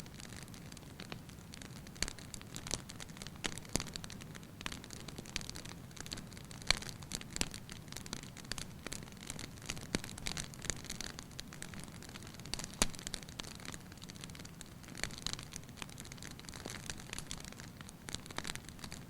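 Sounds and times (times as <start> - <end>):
low rumble of flame: 0.0 - 19.0
wood fire crackling and popping: 0.0 - 19.0.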